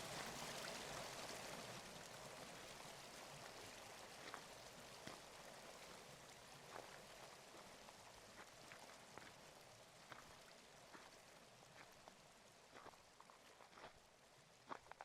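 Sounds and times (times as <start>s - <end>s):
faint running water: 0.0s - 15.0s
light drips: 0.1s - 14.0s.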